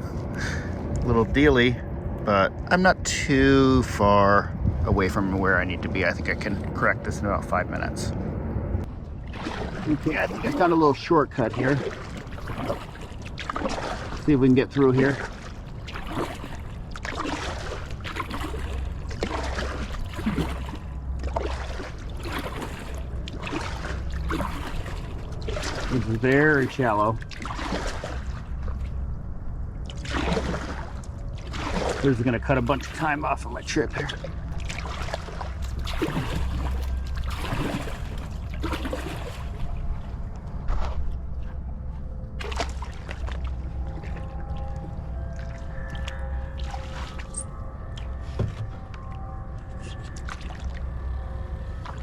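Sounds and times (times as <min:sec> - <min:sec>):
steady low rumble: 0:00.0 - 0:52.0
water gurgling: 0:09.1 - 0:40.9
canoe paddle splashing: 0:09.2 - 0:29.0, 0:29.8 - 0:40.1, 0:42.3 - 0:48.8
water dripping: 0:42.4 - 0:52.0.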